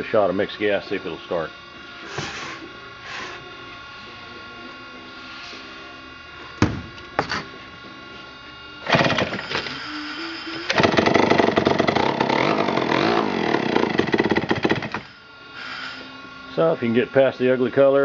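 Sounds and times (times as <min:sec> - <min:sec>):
chainsaw engine starting and running: 0:08.8 - 0:09.7, 0:10.7 - 0:15.1.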